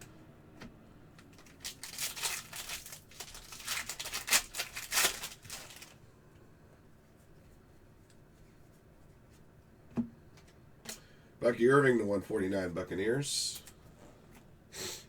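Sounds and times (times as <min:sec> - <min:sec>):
card pack wrapper crinkling and tearing: 0:01.3 - 0:06.0.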